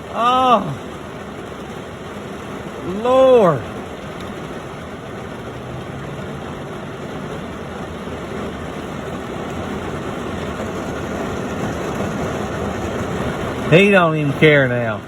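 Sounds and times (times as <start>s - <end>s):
heavy rain on car roof: 0.0s - 15.0s.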